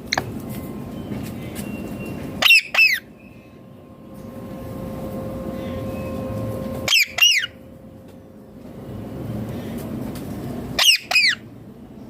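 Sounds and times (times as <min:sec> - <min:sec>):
low rumble: 0:03.2 - 0:10.8.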